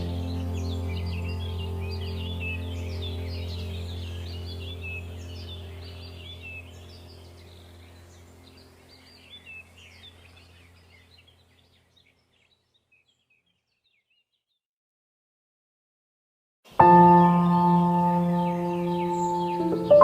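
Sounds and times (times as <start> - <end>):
steady low hum: 0.0 - 11.7
small birds chirping: 0.0 - 14.6, 16.7 - 20.0.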